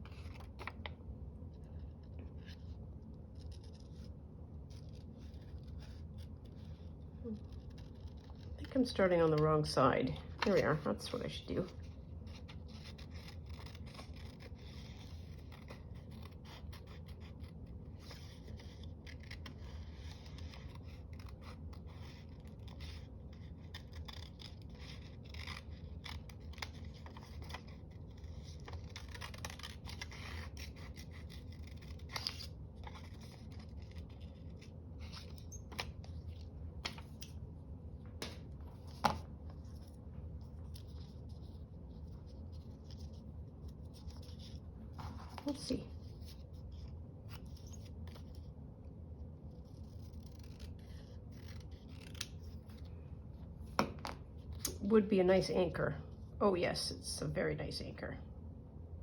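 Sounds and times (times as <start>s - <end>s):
paper rustling: 0.0s - 1.0s
low steady hum: 0.0s - 59.0s
scissors cutting paper: 4.7s - 36.1s, 49.8s - 52.8s.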